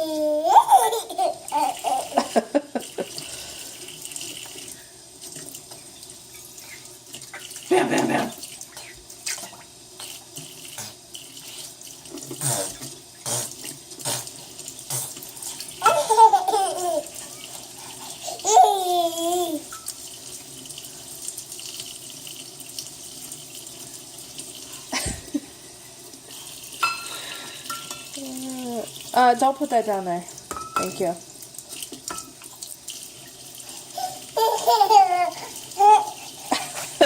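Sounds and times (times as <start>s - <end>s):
child slapping water: 0.0s - 20.0s, 30.5s - 37.0s
faucet running into a sink: 0.0s - 37.0s.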